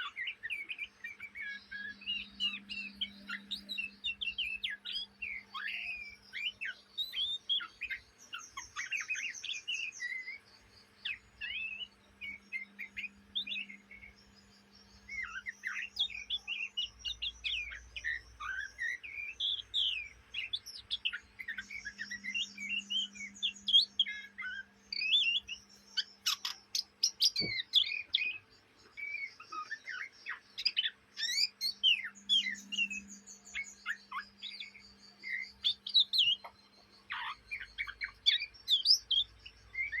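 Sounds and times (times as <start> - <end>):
bird twittering and whistling: 0.0 - 40.0
faint low hum: 0.1 - 40.0.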